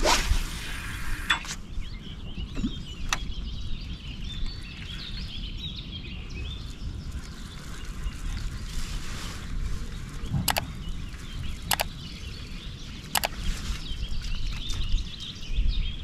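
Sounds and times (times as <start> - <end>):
small birds chirping: 10.3 - 16.0.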